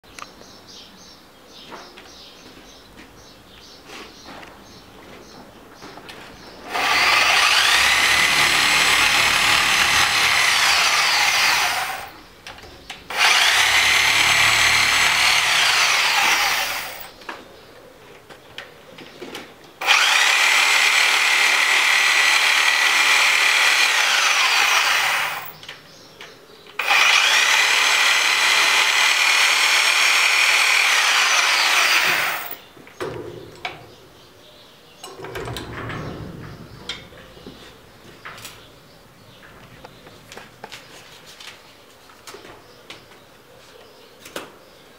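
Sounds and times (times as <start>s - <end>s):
small electric motor whine: 6.7s - 12.2s, 13.1s - 17.1s, 19.8s - 25.6s, 26.8s - 32.6s.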